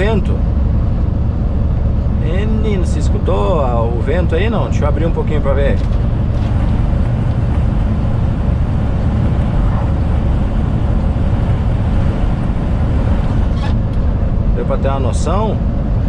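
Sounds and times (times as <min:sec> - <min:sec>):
road noise: 0:00.0 - 0:16.0
truck running: 0:00.0 - 0:16.0
wind rushing through window: 0:00.0 - 0:16.0.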